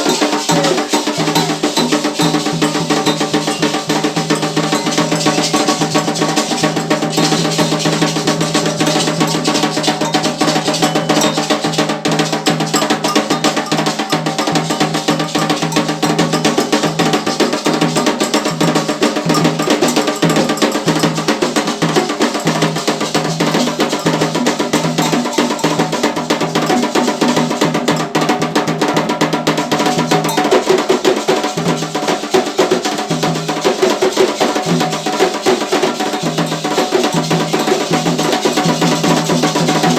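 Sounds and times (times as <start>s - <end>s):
sharp bell: 0.0s - 28.2s, 30.0s - 31.4s, 36.0s - 39.9s
hand drums beating: 0.0s - 39.9s.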